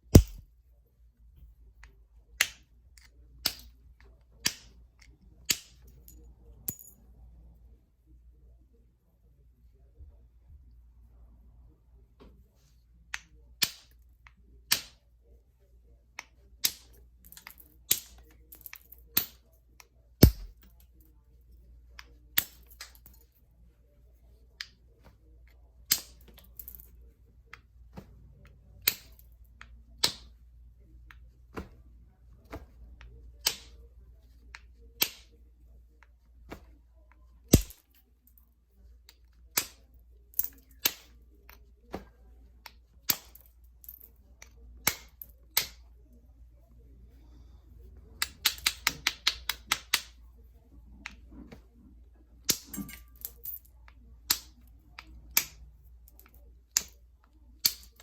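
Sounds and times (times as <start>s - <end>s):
stone flakes clicking and snapping: 0.1s - 0.4s, 20.2s - 20.6s, 37.5s - 37.8s
heavy knocks on stone: 0.2s - 0.4s.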